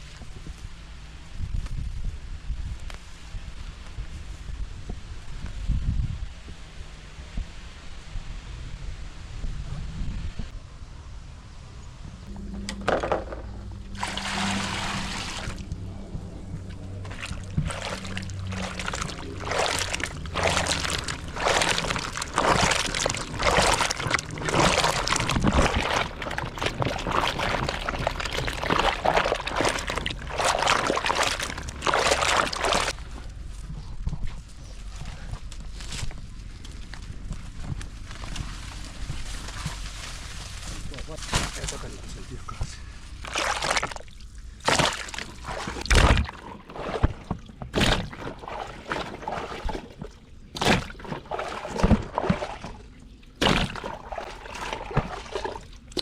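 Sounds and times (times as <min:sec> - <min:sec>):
water pouring and splashing: 0:12.9 - 0:15.9, 0:16.5 - 0:33.0, 0:43.2 - 0:56.0.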